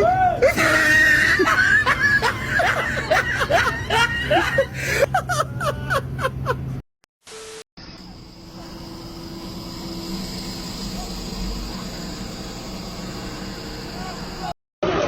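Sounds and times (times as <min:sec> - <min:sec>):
vehicle engine and road noise: 0:02.2 - 0:06.8
faint high whine: 0:07.3 - 0:14.6.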